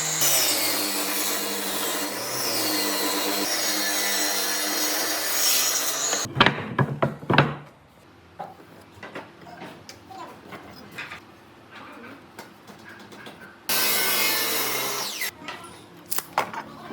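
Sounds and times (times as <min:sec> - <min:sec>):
power tool cutting wood: 0:00.0 - 0:06.3, 0:13.7 - 0:15.3.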